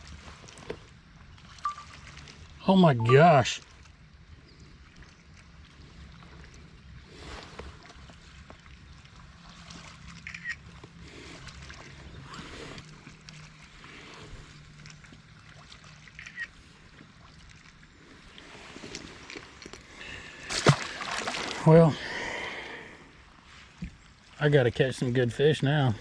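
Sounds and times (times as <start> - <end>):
water lapping around kayak: 0.0 - 26.0
short high chirps: 1.6 - 2.0, 2.9 - 3.2.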